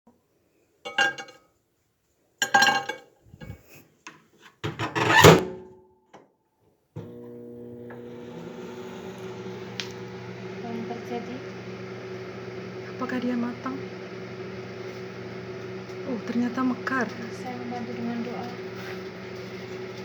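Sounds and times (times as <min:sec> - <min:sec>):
microwave oven humming: 0:07.0 - 0:20.0.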